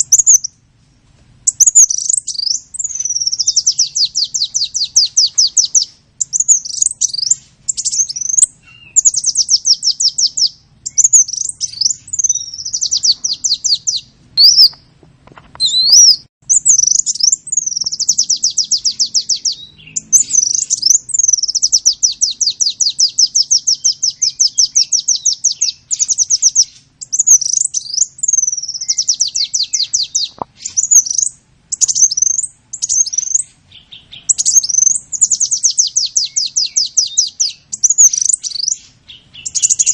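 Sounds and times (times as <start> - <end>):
songbird trilling: 0.0 - 0.6, 1.5 - 14.9, 15.6 - 39.9.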